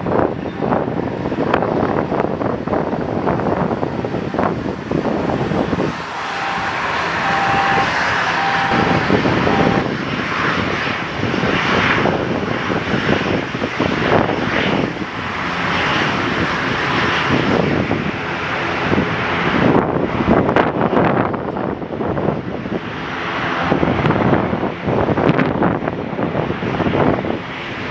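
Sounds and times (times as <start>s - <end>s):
airliner engines rumbling: 0.3s - 11.4s.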